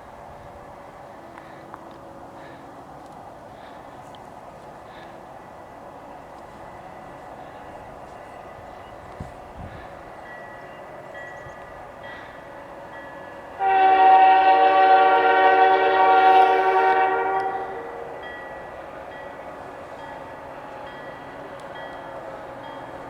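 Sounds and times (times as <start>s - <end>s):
locomotive air horn: 13.6s - 18.2s.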